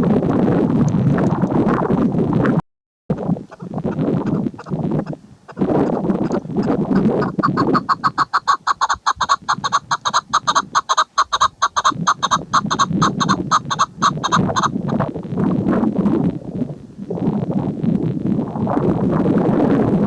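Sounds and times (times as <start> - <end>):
partridge clucking call: 3.2 - 15.1.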